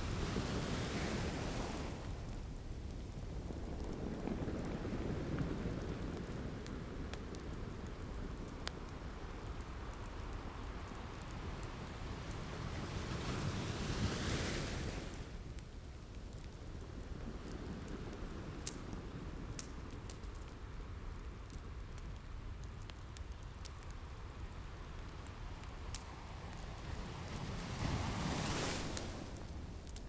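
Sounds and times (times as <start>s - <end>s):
ocean waves washing on beach: 0.0s - 15.5s, 24.6s - 30.0s
wood fire crackling: 0.0s - 30.0s.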